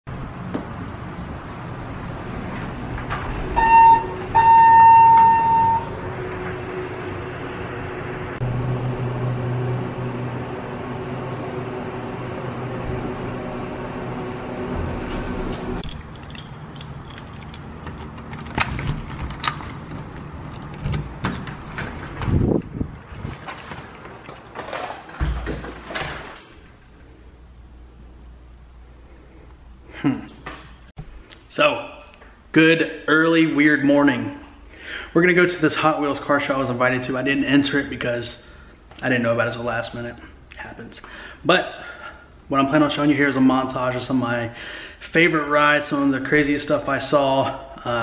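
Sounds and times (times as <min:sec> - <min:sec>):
steady background hum: 0:00.1 - 0:48.0
vehicle horn: 0:03.5 - 0:06.2.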